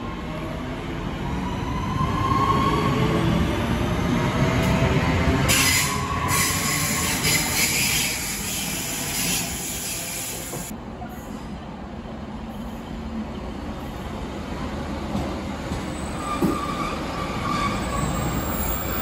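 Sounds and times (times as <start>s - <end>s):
train wheels rumbling on rail: 2.0s - 19.0s
wheel squeal: 15.9s - 19.0s.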